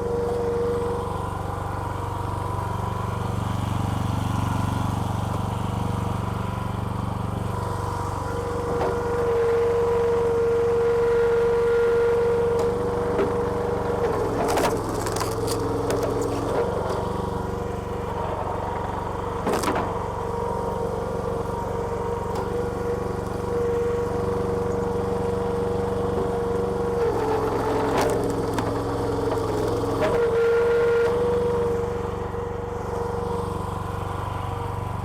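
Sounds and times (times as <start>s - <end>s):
small petrol engine running: 0.0s - 35.0s.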